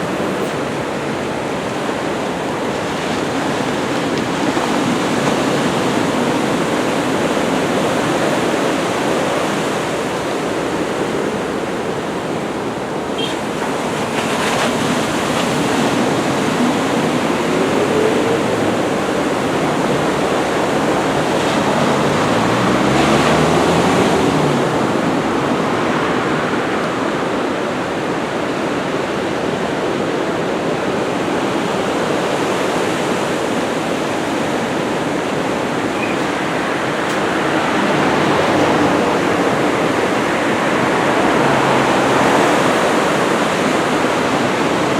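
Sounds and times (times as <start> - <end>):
ocean waves breaking: 0.0 - 44.9
engine revving: 15.1 - 26.7, 35.2 - 44.5.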